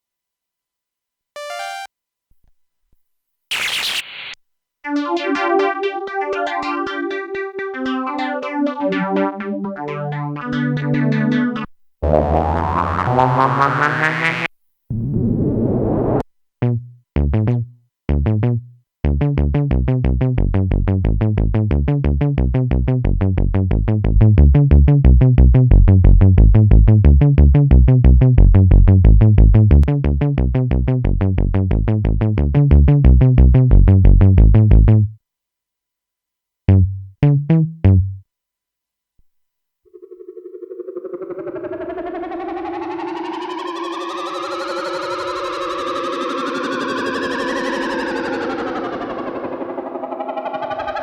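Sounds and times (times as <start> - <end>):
synthesizer sequence of short notes: 1.4 - 1.9, 3.5 - 15.1, 39.9 - 51.0.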